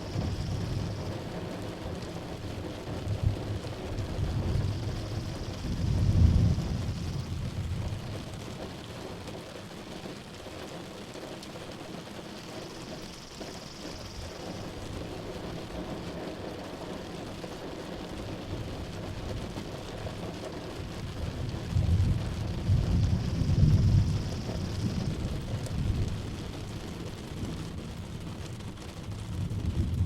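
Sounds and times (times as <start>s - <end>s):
rolling thunder: 0.0s - 8.8s, 20.9s - 30.0s
steady rain: 0.0s - 30.0s.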